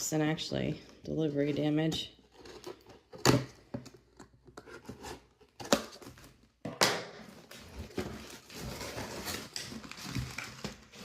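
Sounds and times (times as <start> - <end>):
plastic rustling and crinkling: 7.3 - 11.0.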